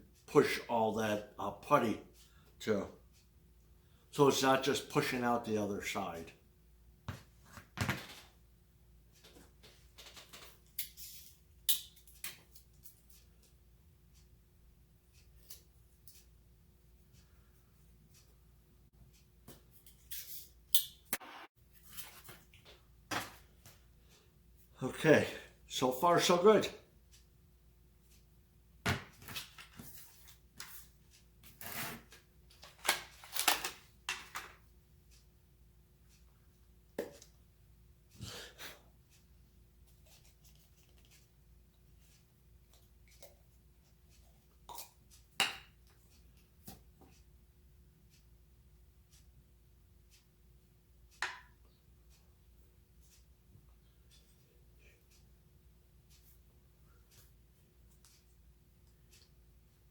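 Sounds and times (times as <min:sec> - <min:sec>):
handling noises on a workbench: 0:07.1 - 0:08.4, 0:21.7 - 0:23.8.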